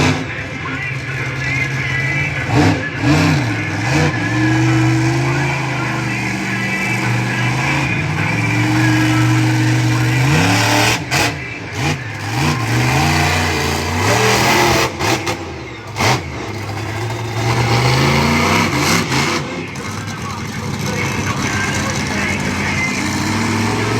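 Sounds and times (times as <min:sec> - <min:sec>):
monster truck engine revving: 0:00.0 - 0:23.9.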